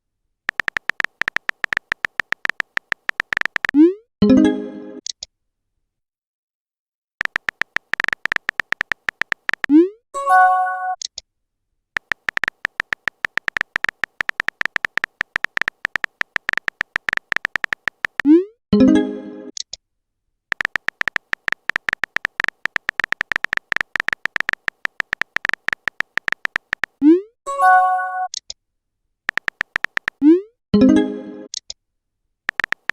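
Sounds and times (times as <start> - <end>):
phone keyboard typing clicks: 0.5 - 3.8, 7.2 - 9.8, 12.0 - 18.3, 20.5 - 27.0, 29.3 - 30.3, 32.5 - 32.9.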